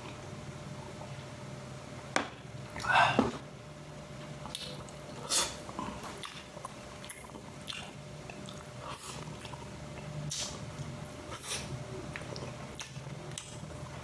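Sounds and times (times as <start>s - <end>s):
person chewing food: 4.4s - 14.0s.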